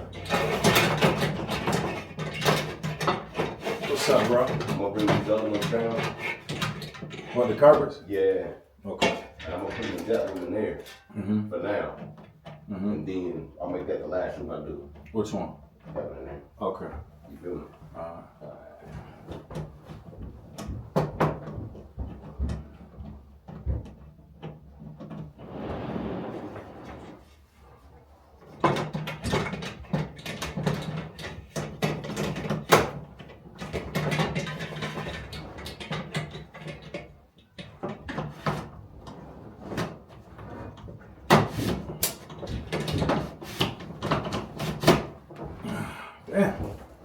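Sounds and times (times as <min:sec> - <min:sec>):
scraping: 0:25.3 - 0:27.4.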